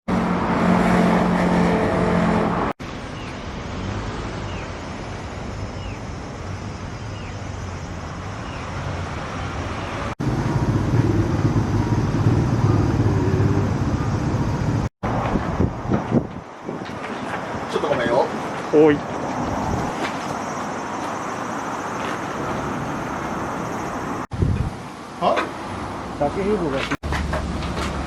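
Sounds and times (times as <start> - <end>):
vehicle engine running: 10.2 - 14.9.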